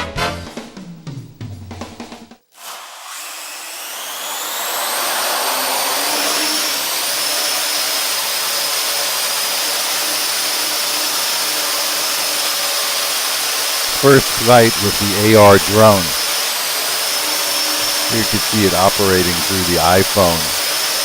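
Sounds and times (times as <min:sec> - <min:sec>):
drone rotors whining: 0:02.8 - 0:07.8, 0:13.9 - 0:21.0.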